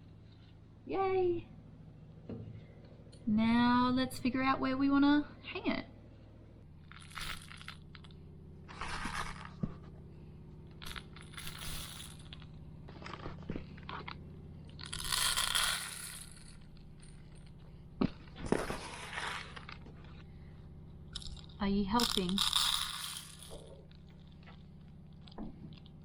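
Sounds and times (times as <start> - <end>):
steady low hum: 0.0 - 26.0
crunching and scraping handling noises: 6.9 - 10.1, 10.7 - 20.6.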